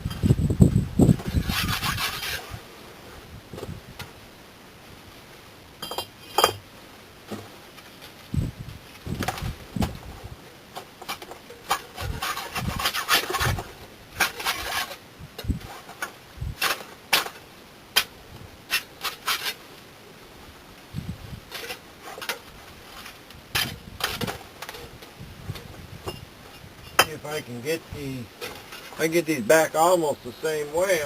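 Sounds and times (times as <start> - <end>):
brick scraping on brick: 1.1 - 2.6, 10.8 - 15.0, 18.7 - 19.6, 28.3 - 29.2
bricks clinking and knocking: 5.8 - 6.6.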